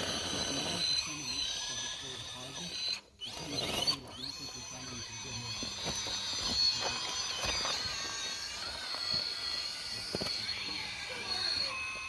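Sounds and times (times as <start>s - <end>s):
toy truck motor whining: 0.0s - 12.0s.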